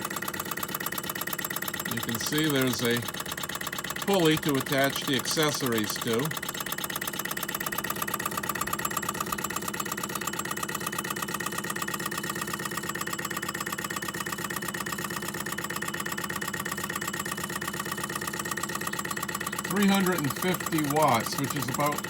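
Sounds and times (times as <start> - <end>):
hot air engine fast even beat: 1.9 - 6.5, 14.2 - 22.0.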